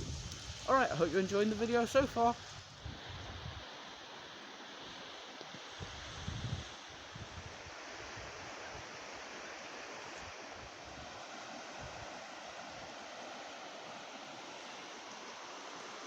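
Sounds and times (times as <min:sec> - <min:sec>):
wind gusts buffeting microphone: 0:00.0 - 0:03.7, 0:05.8 - 0:09.1
steady outdoor wind: 0:00.0 - 0:16.0.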